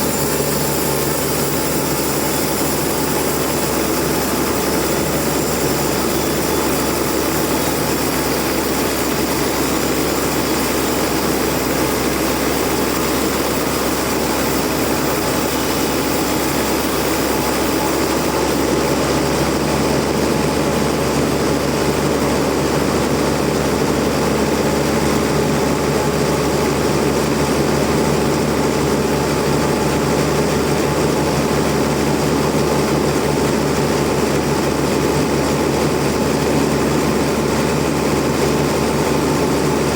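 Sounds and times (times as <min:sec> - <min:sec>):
sawmill machinery droning: 0:00.0 - 0:39.9.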